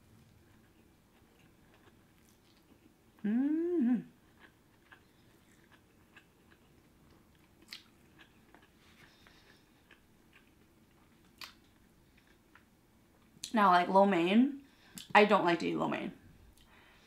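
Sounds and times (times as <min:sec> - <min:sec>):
person chewing food: 0:00.2 - 0:03.4, 0:04.1 - 0:13.4
person humming: 0:03.2 - 0:04.1.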